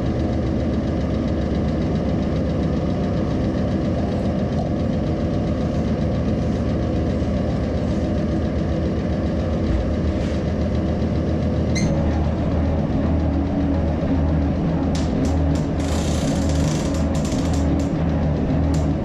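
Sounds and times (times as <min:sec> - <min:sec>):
low knocking of machining: 0:08.4 - 0:19.0.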